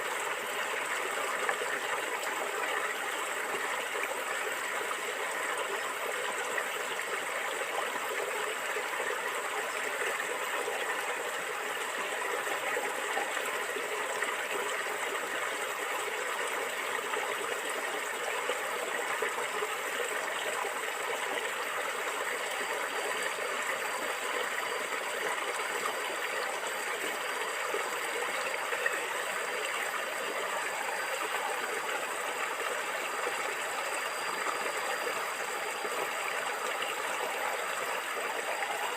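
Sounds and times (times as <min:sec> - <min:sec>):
stream water flowing and gurgling: 0:00.0 - 0:38.9.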